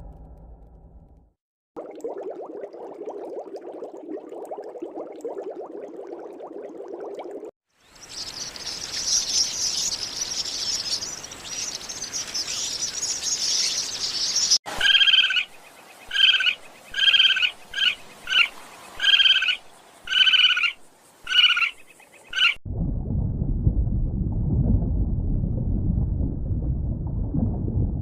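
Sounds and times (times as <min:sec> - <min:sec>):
high chirping chorus: 0:07.9 - 0:22.6.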